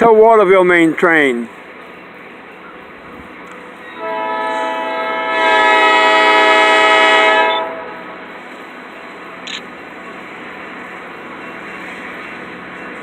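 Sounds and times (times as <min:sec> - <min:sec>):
locomotive air horn blast: 0:04.0 - 0:08.2.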